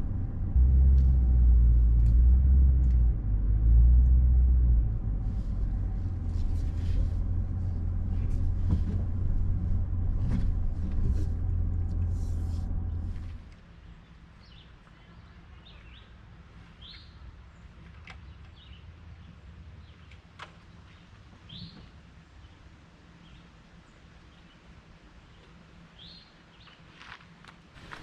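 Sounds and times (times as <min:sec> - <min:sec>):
low steady hum: 0:00.0 - 0:16.6
small birds chirping: 0:13.7 - 0:27.0.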